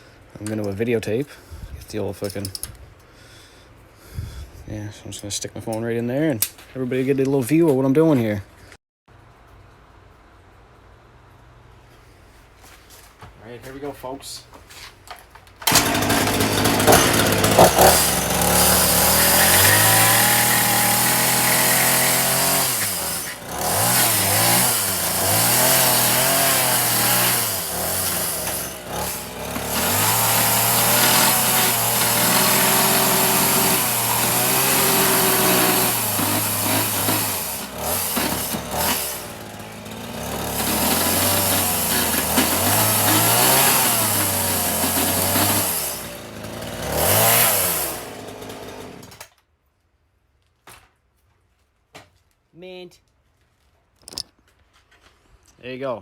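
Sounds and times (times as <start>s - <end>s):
chainsaw cutting wood: 15.6s - 49.4s.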